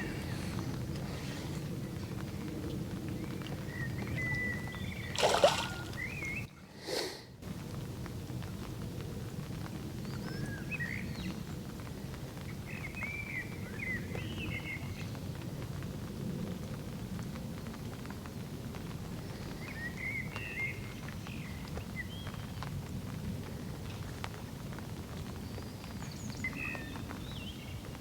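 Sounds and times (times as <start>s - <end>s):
steady rain with drips: 0.0s - 28.0s
songbird warbling: 3.7s - 6.5s.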